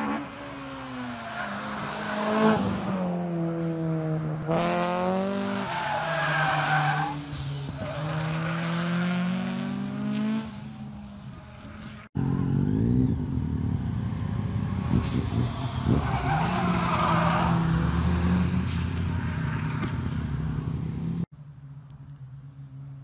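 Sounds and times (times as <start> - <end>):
engine revving through gears: 1.8 - 5.8, 7.9 - 10.6
high engine whine: 9.2 - 23.0.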